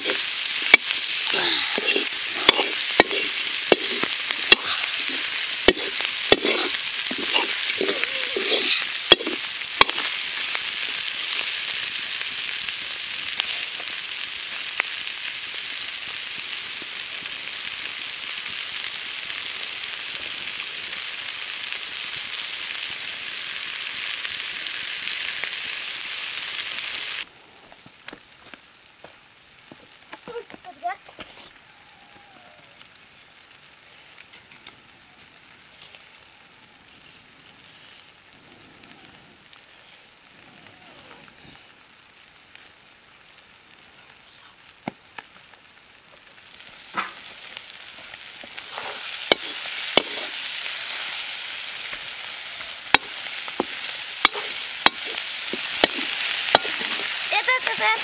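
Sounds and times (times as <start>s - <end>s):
curry sizzling in hot oil: 0.0s - 27.3s, 40.8s - 58.0s.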